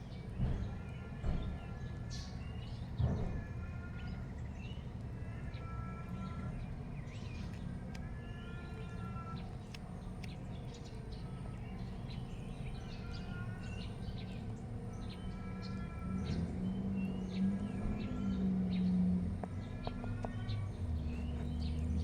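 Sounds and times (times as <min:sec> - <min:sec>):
birds chirping and calling: 0:06.4 - 0:22.0.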